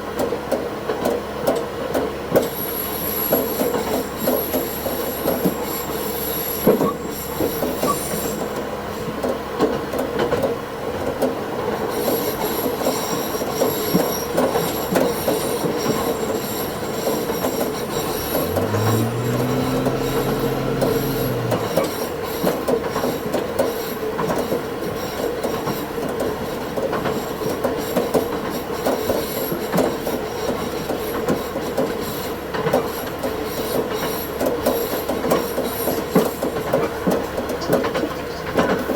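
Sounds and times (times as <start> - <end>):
diesel railcar running: 0.0 - 38.9
train wheels squealing: 2.3 - 9.4, 11.6 - 38.9
rails creaking: 13.5 - 22.6.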